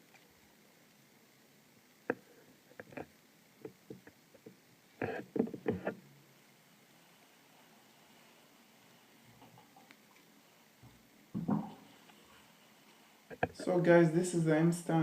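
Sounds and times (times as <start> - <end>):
light knocks and clicks: 10.8 - 11.8.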